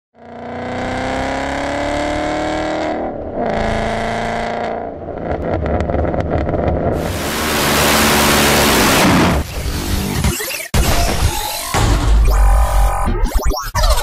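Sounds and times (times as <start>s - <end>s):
car engine accelerating: 0.2s - 10.1s
exhaust crackling pops: 5.2s - 7.0s.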